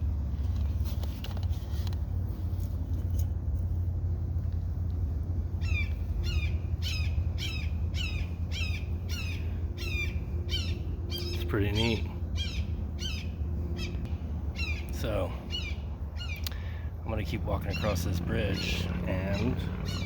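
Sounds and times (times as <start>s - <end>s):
bird harsh calls: 5.4s - 20.0s.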